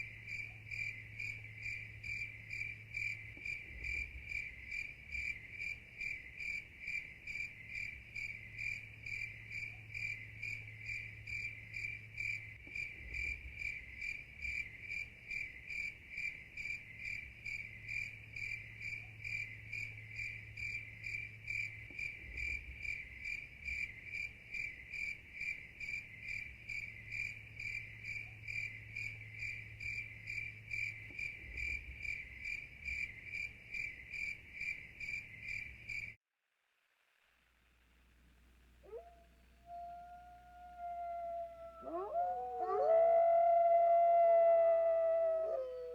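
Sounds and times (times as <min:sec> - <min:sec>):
insect chirping: 0:00.0 - 0:36.2, 0:38.8 - 0:45.9.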